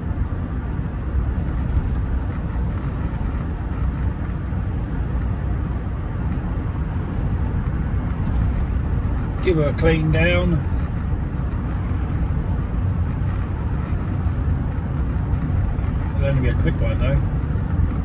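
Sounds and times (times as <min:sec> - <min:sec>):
car cabin road rumble: 0:00.0 - 0:18.0.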